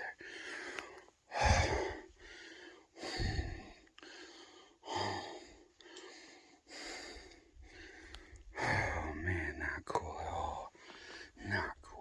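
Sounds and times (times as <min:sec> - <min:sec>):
man breathing hard: 0:00.0 - 0:09.1, 0:10.7 - 0:11.4.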